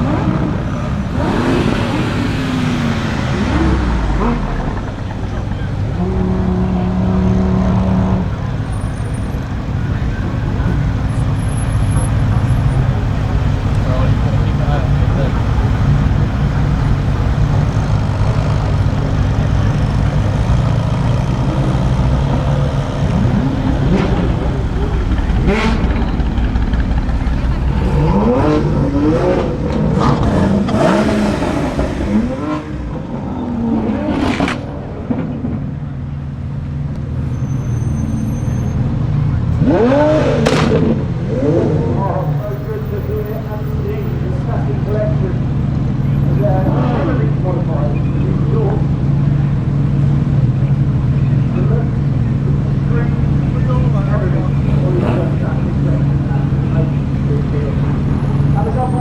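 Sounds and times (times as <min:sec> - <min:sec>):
held engine note: 0:00.0 - 0:33.8
car engines rumbling: 0:00.0 - 0:59.0.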